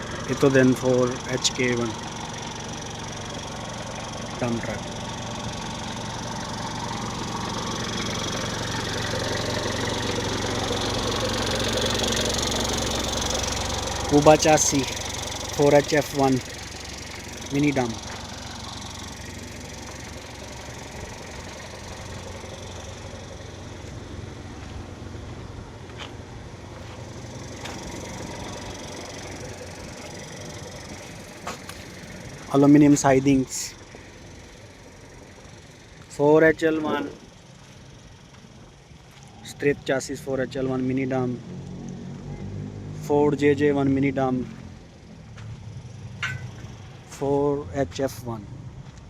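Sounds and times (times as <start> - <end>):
diesel truck engine idling: 0.0 - 49.0.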